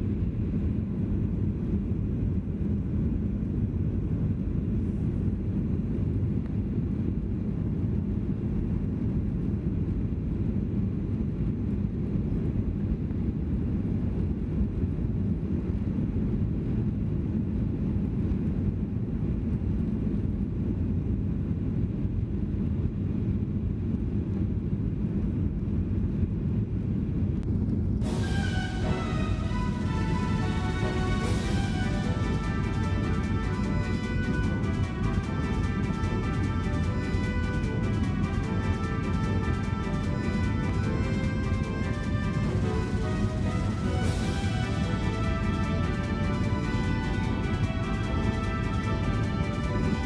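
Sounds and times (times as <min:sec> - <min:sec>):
jet engine drone in cabin: 0:00.0 - 0:50.0
music: 0:28.0 - 0:50.0.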